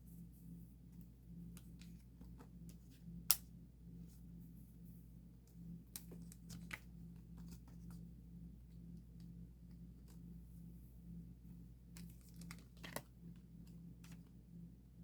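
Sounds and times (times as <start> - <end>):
plastic card sleeves clicking and rustling: 5.9 - 8.0, 12.0 - 13.1.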